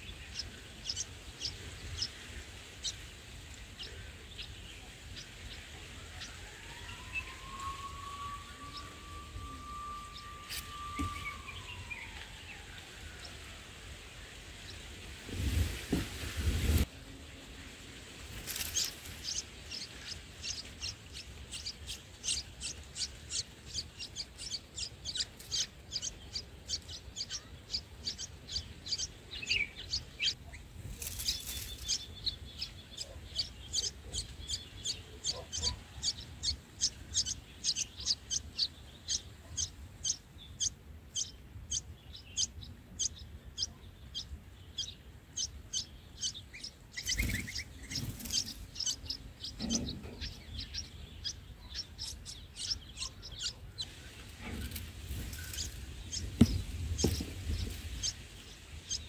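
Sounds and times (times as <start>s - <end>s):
nestlings cheeping: 18.4s - 59.0s.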